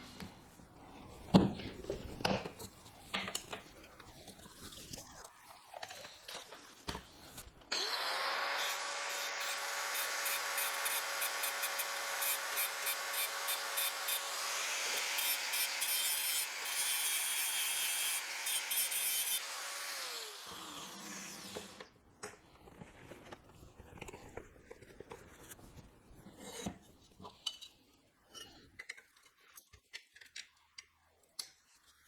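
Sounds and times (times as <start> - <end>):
angle grinder grinding metal: 7.7 - 21.9.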